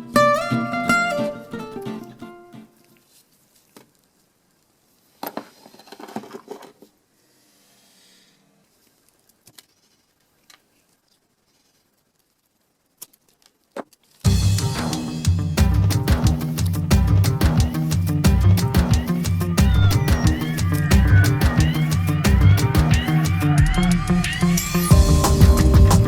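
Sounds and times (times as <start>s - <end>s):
faint brief rustle: 2.8s - 14.3s
loud music with drums: 14.3s - 26.0s.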